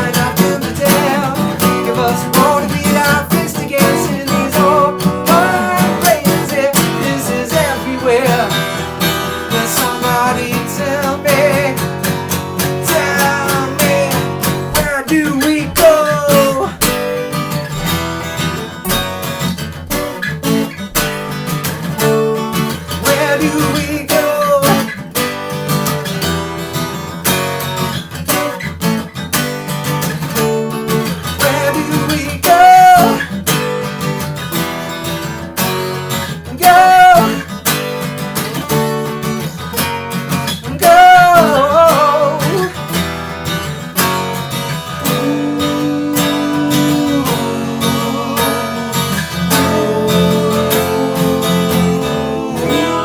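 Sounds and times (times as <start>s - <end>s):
acoustic guitars playing: 0.0s - 53.0s
loud swooping guitar notes: 39.6s - 53.0s.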